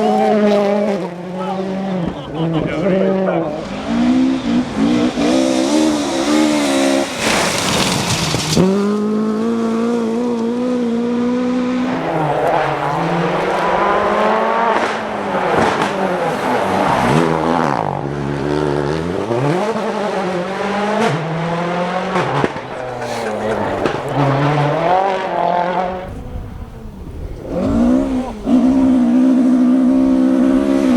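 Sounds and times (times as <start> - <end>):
rally car engines revving: 0.0 - 30.9
loud rush of noise: 11.8 - 18.0.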